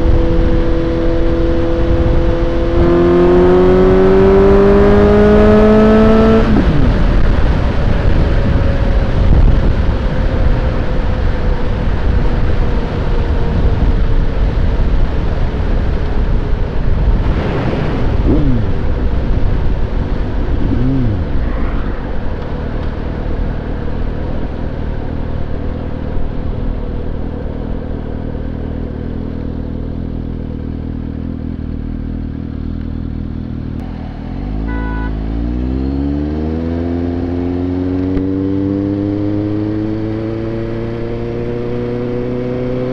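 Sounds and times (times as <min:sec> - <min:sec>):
motorcycle engine under way: 0:00.0 - 0:21.5, 0:22.4 - 0:42.9
wind noise: 0:00.0 - 0:28.1.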